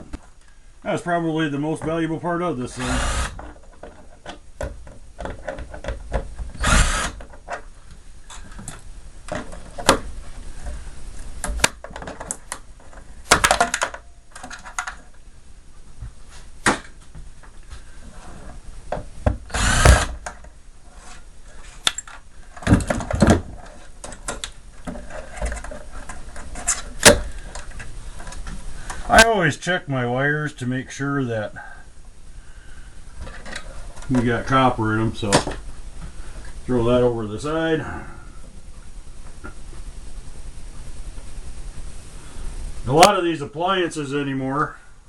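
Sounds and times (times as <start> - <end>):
power drill bursts: 2.7 - 3.4, 6.6 - 7.2, 19.5 - 20.2
clicks and knocks of parts: 11.4 - 15.2, 21.6 - 29.0.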